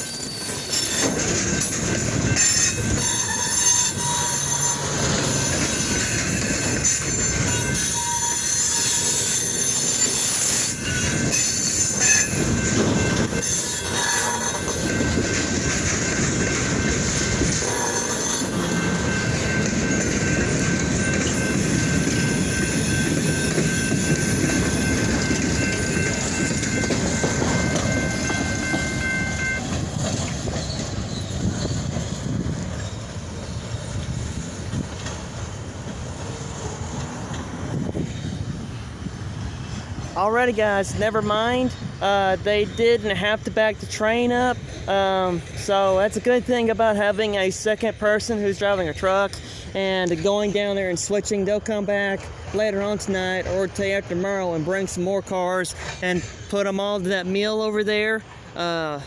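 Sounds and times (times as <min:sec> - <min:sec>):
wheels squealing: 0:00.0 - 0:41.0
freight train cars rolling: 0:00.0 - 0:59.0
train clanks: 0:00.0 - 0:59.0.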